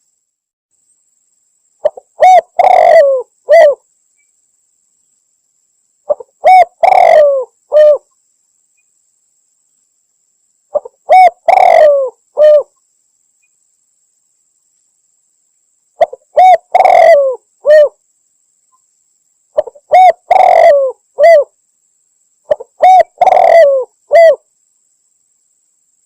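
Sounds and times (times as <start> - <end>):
dove cooing: 1.8 - 3.8, 6.1 - 8.1, 10.7 - 12.7, 16.0 - 18.0, 19.6 - 21.5, 22.5 - 24.4.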